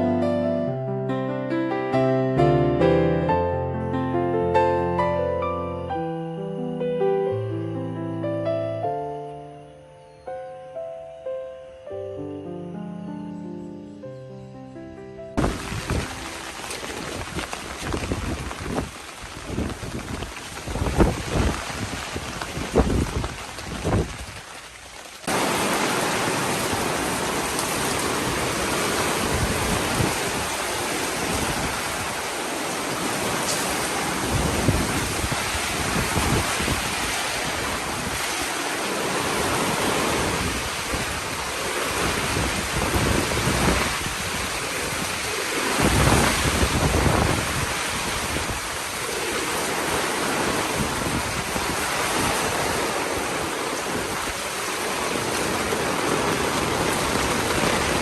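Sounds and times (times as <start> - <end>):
thunder rumbling: 15.4 - 24.6
heavy rain pouring: 15.4 - 58.0.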